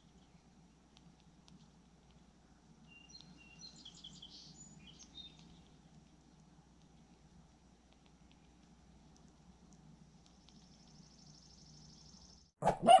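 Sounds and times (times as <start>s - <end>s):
songbird chirping: 2.8s - 6.6s, 8.4s - 13.0s.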